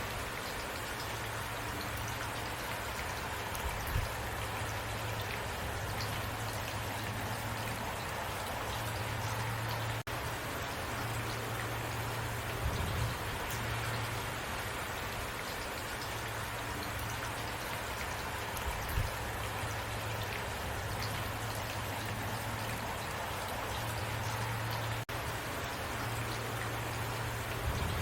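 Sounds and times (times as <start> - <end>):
heavy rain falling: 0.0 - 28.0
low steady rumble: 3.2 - 14.9, 20.7 - 28.0.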